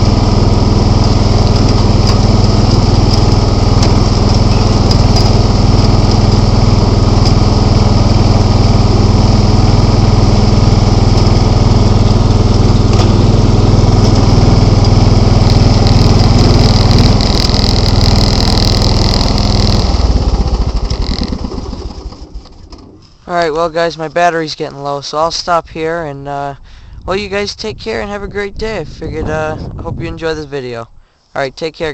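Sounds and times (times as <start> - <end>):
lawn tractor engine running: 0.0 - 23.8.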